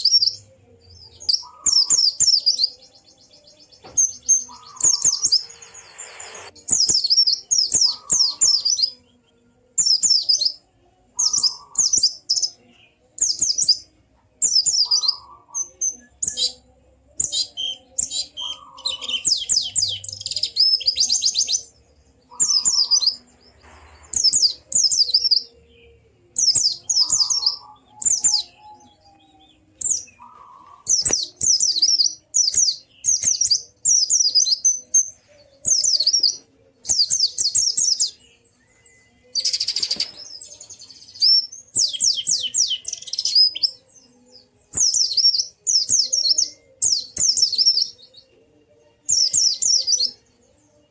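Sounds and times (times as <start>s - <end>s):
bird singing high notes: 1.1s - 9.1s.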